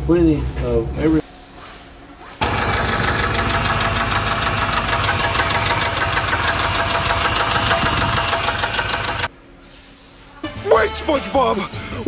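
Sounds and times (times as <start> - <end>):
engine knocking: 2.4 - 9.3.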